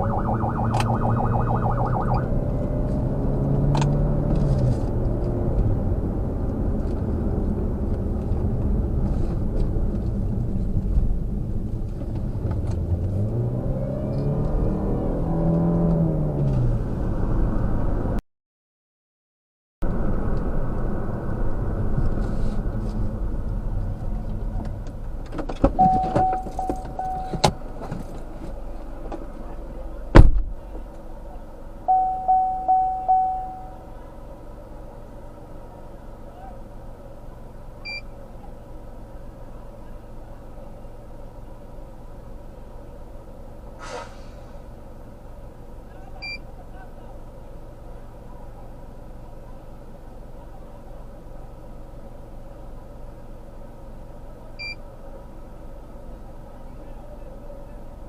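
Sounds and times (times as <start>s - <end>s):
car engine and road noise: 0.0s - 18.2s, 19.8s - 58.0s
car warning chime dinging: 25.8s - 27.6s, 31.9s - 33.9s
car door slam: 30.1s - 30.5s.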